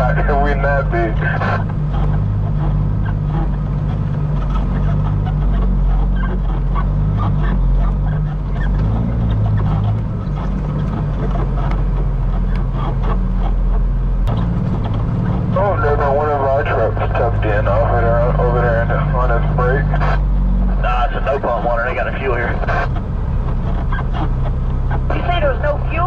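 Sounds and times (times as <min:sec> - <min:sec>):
truck diesel engine droning: 0:00.0 - 0:26.0.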